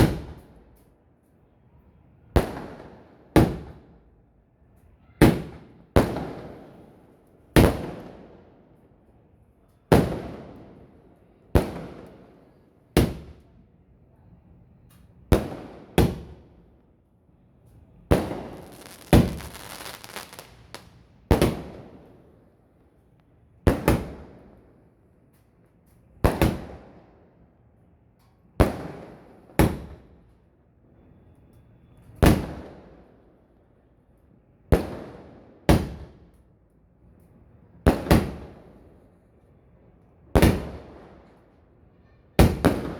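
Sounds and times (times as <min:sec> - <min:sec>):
firework bangs with echo: 0:18.1 - 0:21.9
firework crackling hiss: 0:18.4 - 0:21.0.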